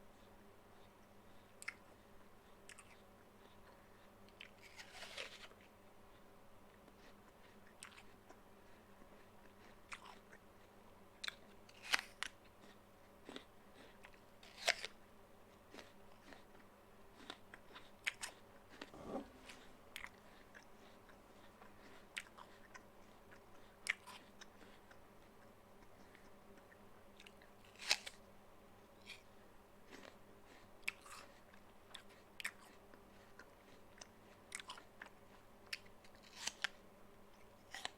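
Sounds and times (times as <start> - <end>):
person crunching an apple: 14.0 - 15.0, 27.2 - 28.2, 35.8 - 36.7.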